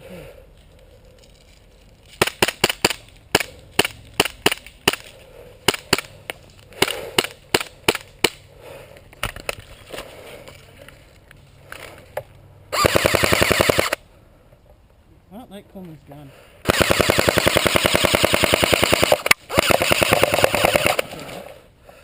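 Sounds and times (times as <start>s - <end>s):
airsoft gun full-auto burst: 12.7s - 14.0s, 16.6s - 21.3s.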